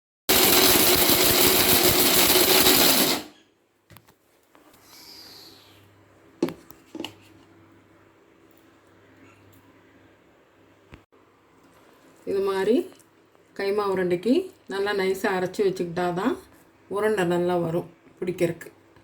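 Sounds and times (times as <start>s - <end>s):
mixer grinder running: 0.3s - 3.3s.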